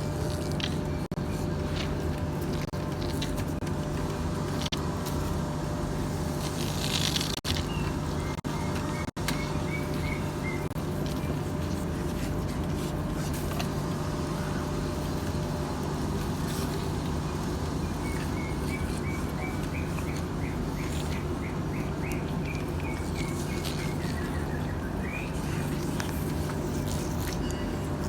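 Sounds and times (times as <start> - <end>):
bird chirping: 7.5 - 11.3.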